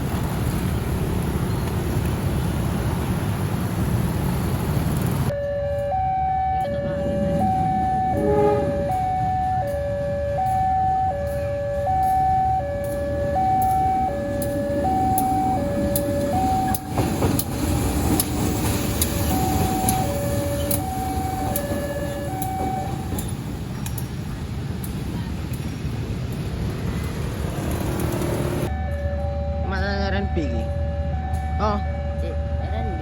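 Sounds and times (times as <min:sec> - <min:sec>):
low rumble: 0:04.7 - 0:10.7
level crossing two-tone alarm: 0:05.3 - 0:17.0, 0:19.2 - 0:23.2.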